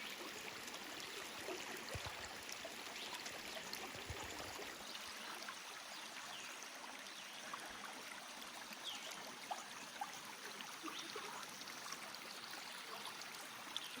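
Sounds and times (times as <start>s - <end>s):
water gurgles and plinks: 0.0s - 5.6s
creek water flowing: 0.0s - 14.0s.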